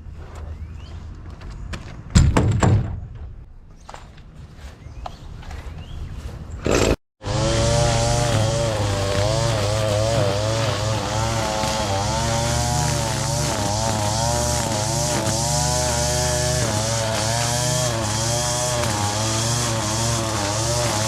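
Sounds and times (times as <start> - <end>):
small gasoline engine running: 6.7 - 21.0.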